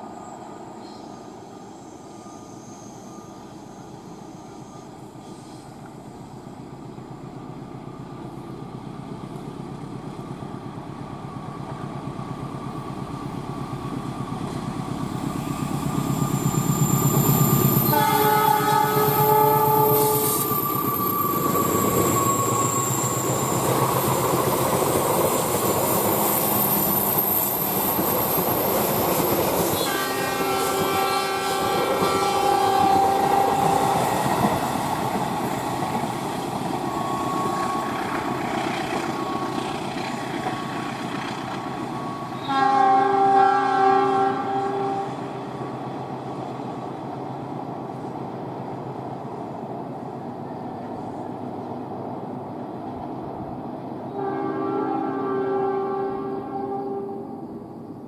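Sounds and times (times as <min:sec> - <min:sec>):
train wheels rumbling on rails: 0:00.0 - 0:54.3
train horn blast: 0:17.8 - 0:20.5, 0:29.8 - 0:34.1, 0:37.0 - 0:38.1, 0:42.4 - 0:45.2, 0:54.1 - 0:57.4.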